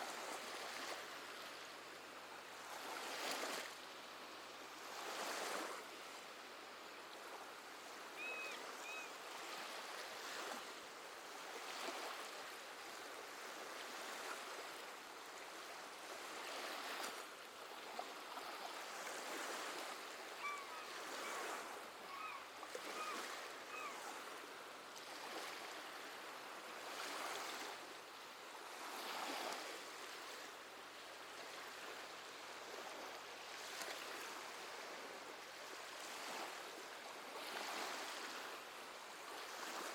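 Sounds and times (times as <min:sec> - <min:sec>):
sea waves washing ashore: 0:00.0 - 0:39.9
seabird calls: 0:08.2 - 0:09.2, 0:20.2 - 0:24.3.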